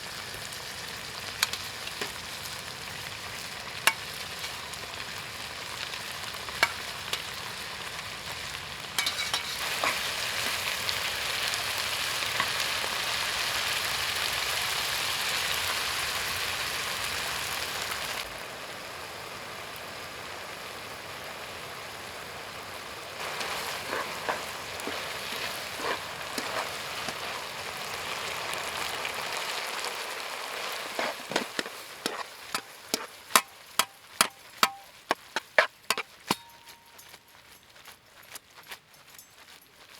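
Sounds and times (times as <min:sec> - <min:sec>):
food sizzling in a pan: 0:00.0 - 0:38.3
utensil clicking while stirring: 0:23.2 - 0:27.3.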